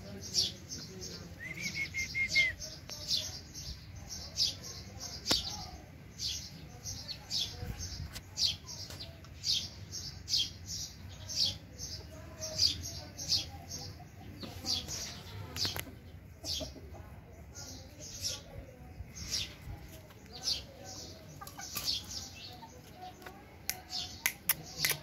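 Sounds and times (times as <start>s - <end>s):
small birds chirping: 0.0s - 25.0s
sharp click: 23.7s - 25.0s.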